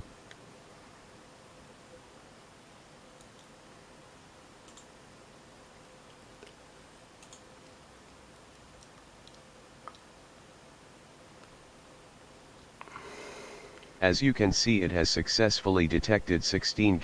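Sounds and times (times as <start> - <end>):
faint hum: 0.0 - 17.0
steady low hiss: 0.0 - 17.0
faint clicks: 4.6 - 4.9, 7.2 - 7.8, 8.5 - 10.1.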